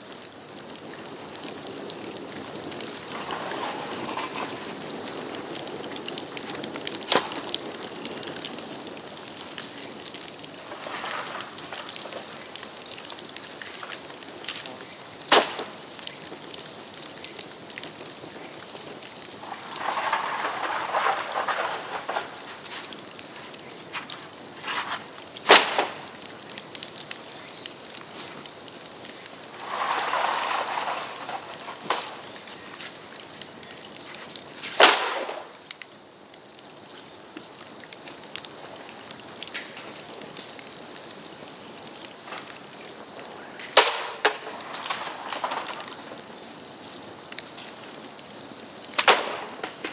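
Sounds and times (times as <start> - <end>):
bamboo fire crackling and hissing: 0.0 - 49.9
bamboo sections bursting with bangs: 10.6 - 12.4, 15.2 - 16.0, 19.2 - 26.4, 29.3 - 32.8, 34.6 - 35.7, 43.6 - 46.3, 49.0 - 49.9
thin high whistle: 17.5 - 25.0.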